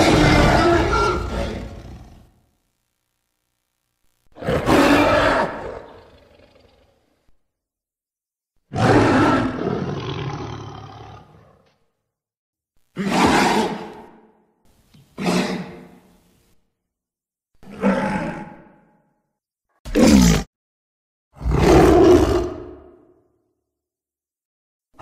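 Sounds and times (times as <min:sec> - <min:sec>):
creature roaring: 0:00.0 - 0:02.3, 0:04.4 - 0:07.0, 0:08.7 - 0:11.6, 0:17.6 - 0:18.8, 0:19.9 - 0:20.5, 0:21.4 - 0:23.2.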